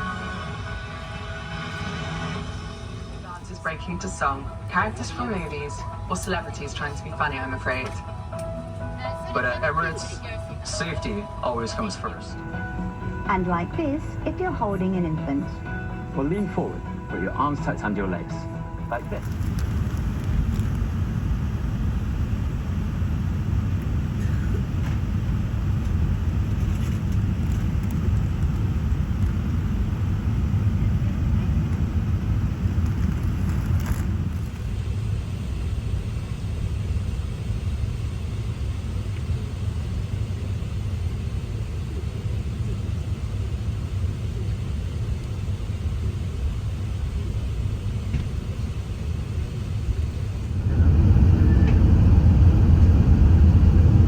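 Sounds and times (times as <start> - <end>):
aircraft engine rumble in cabin: 0.0 - 54.0.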